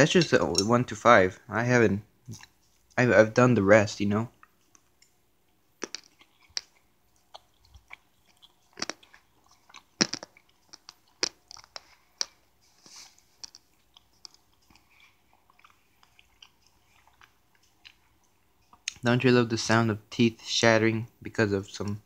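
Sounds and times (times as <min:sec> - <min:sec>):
person chewing crunchy food: 0:02.3 - 0:03.0, 0:04.3 - 0:19.0.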